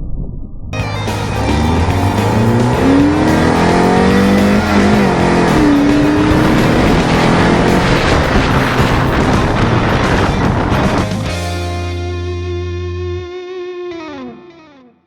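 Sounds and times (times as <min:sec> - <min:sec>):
car engine accelerating: 0:00.8 - 0:11.5.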